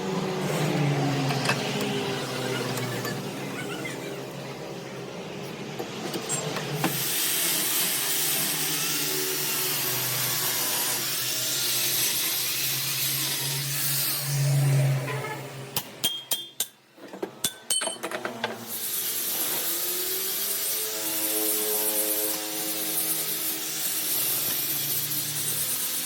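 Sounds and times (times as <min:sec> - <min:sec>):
workshop machine noise with hiss: 0:00.0 - 0:26.0.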